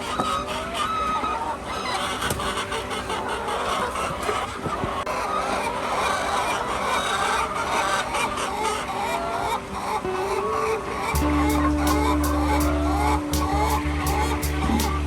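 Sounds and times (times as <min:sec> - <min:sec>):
hens clucking: 0:00.0 - 0:15.0
steady low hum: 0:11.2 - 0:15.0.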